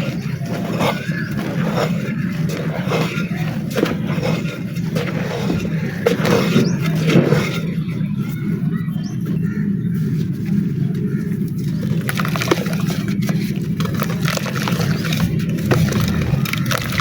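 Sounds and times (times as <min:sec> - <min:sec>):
dry clay crumbling and crunching: 0:10.9 - 0:17.0
low hum: 0:13.0 - 0:17.0.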